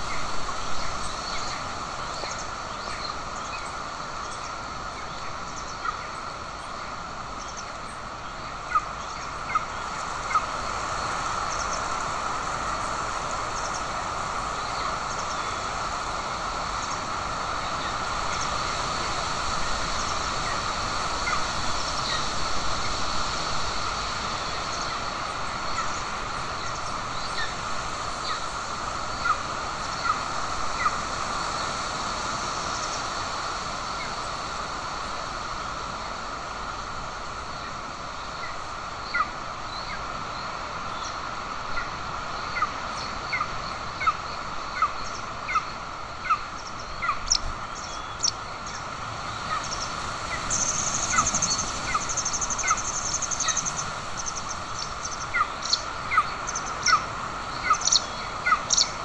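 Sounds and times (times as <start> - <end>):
steady outdoor hiss: 0.0 - 59.0
eagle chick begging peeps: 49.5 - 58.9.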